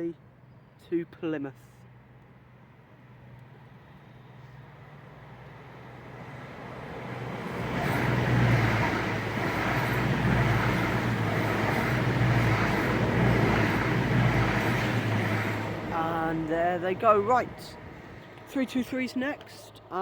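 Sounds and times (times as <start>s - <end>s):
diesel train engine drone: 1.6s - 20.0s
wheels on rails: 6.6s - 20.0s.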